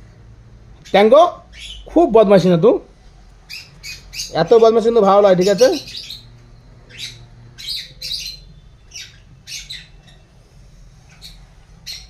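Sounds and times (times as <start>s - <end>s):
baby lovebird squawking: 0.8s - 2.0s, 3.5s - 4.5s, 5.4s - 6.3s, 6.9s - 10.2s, 11.1s - 12.0s.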